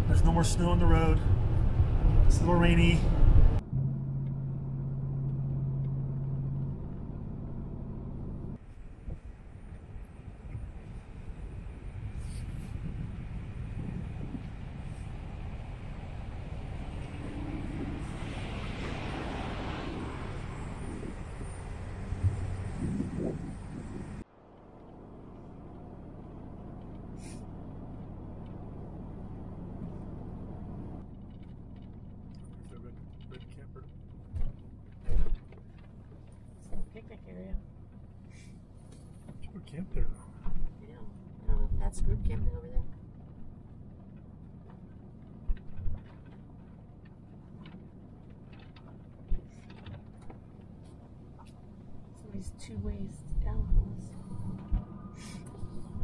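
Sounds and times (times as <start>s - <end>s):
road noise on wet highway: 0.0s - 56.0s
van engine low rumble: 0.0s - 56.0s
small clicks and rattles: 31.0s - 37.2s, 42.8s - 51.7s.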